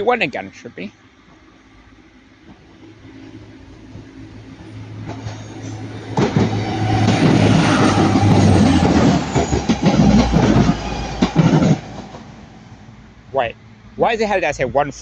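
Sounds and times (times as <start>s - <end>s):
diesel train engine hum: 0.0s - 15.0s
wheels on rails: 2.4s - 12.9s.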